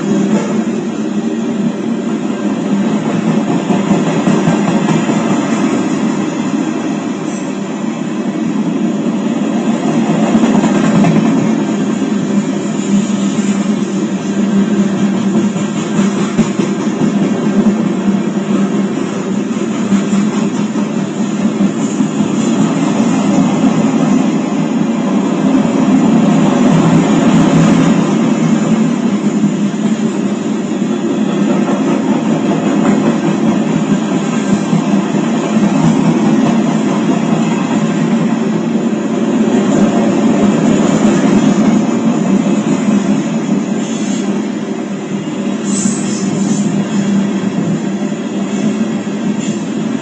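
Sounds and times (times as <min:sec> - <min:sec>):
freight train wheels on rail: 0:00.0 - 0:50.0.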